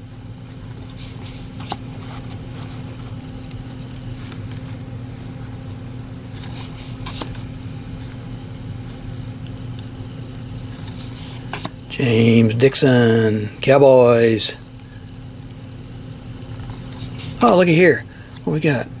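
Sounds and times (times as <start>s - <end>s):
low electrical hum: 0.0s - 19.0s
cards rustling: 0.5s - 11.9s, 16.4s - 18.8s.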